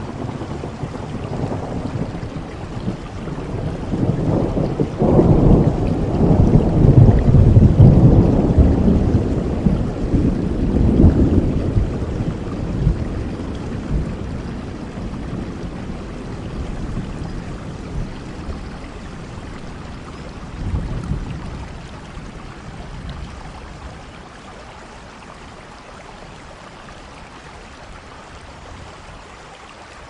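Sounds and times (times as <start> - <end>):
thunder rolling: 0.0 - 22.4
steady rain: 0.0 - 30.0.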